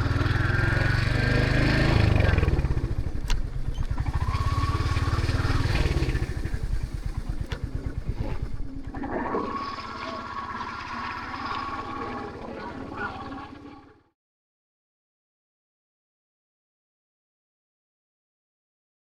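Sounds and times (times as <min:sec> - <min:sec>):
motorcycle engine thumping: 0:05.3 - 0:08.7.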